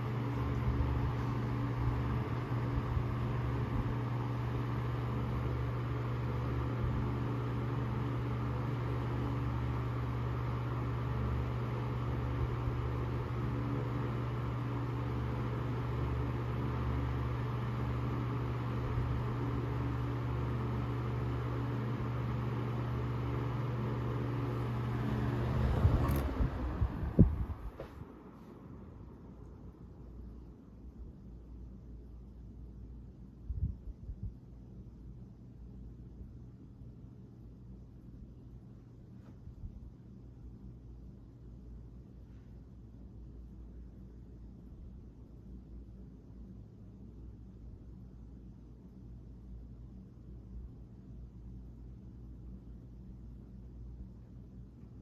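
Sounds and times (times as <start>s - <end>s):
table fan humming: 0.0s - 33.4s.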